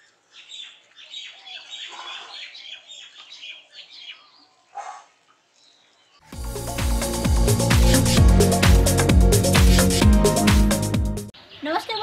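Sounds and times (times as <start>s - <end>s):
small birds chirping: 0.0s - 6.3s.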